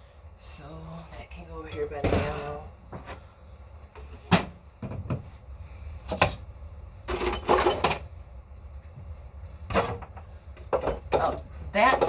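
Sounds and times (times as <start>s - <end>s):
household items clattering on counter: 7.1s - 8.1s, 9.7s - 12.0s.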